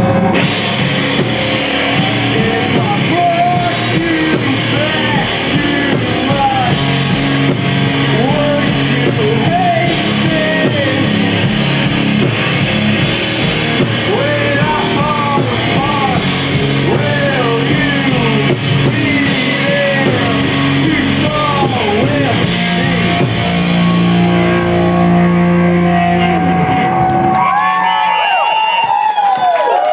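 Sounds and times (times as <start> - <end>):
rock band playing: 0.0 - 29.0
person singing: 1.6 - 12.2, 13.7 - 25.2.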